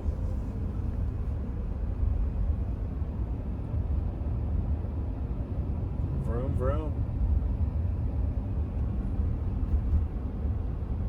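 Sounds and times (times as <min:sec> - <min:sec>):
road and tyre noise: 0:00.0 - 0:11.0
car interior rumble: 0:08.0 - 0:11.0.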